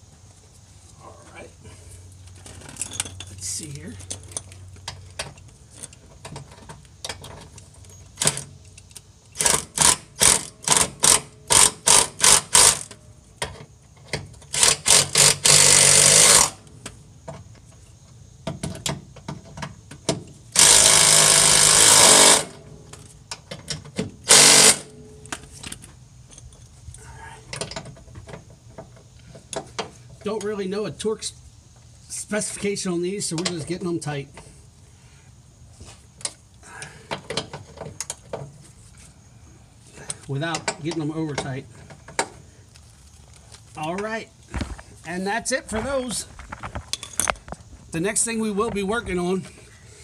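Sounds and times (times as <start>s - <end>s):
impact wrench hammering bolts: 9.4s - 16.5s, 18.4s - 22.6s, 23.3s - 24.9s.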